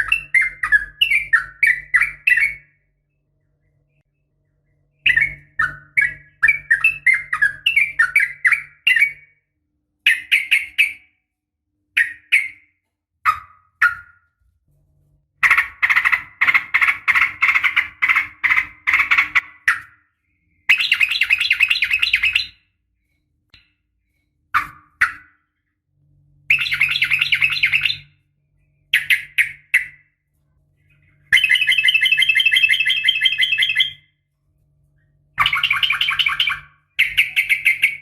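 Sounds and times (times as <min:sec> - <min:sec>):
bird harsh chatter: 0:15.4 - 0:19.9
bird whistled calls: 0:31.3 - 0:34.1, 0:35.4 - 0:38.0.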